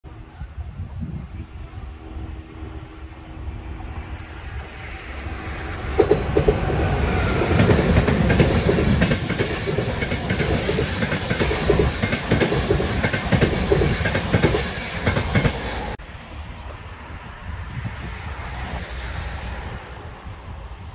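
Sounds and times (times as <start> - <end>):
passenger train rumbling past: 0.1 - 20.9
wheels clacking over track: 4.1 - 16.0.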